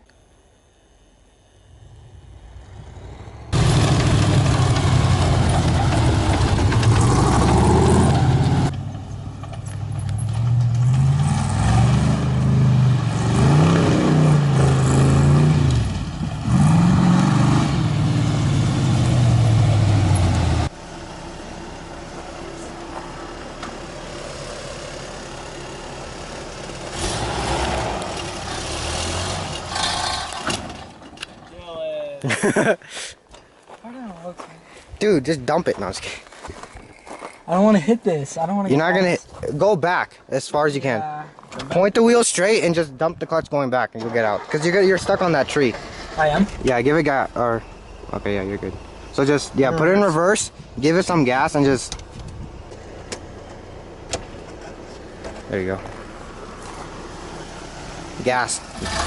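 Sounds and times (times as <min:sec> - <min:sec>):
engine revving hard: 0:02.6 - 0:08.7, 0:10.8 - 0:20.7, 0:26.8 - 0:30.6, 0:58.2 - 0:59.0.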